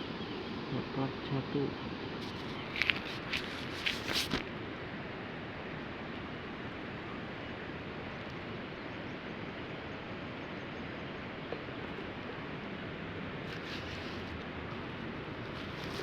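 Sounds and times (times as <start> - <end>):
outdoor ambience hiss: 0.0 - 16.0.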